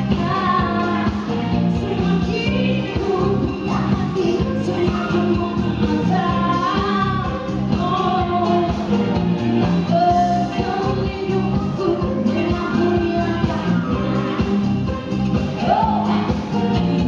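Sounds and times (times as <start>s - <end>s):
woman singing: 0.0s - 17.0s.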